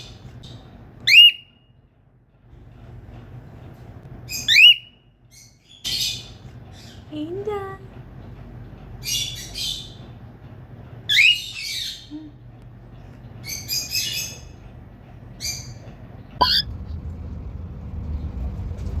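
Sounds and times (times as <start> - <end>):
cockatiel squawking: 16.4 - 16.7
low rumbling: 16.4 - 19.0.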